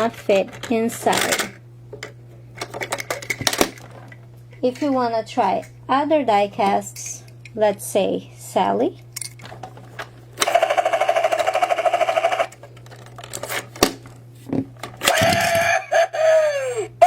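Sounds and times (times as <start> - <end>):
falling electronic toy sound: 10.4 - 12.6, 15.0 - 16.8
toy helicopter rotor sound effect: 10.4 - 12.6.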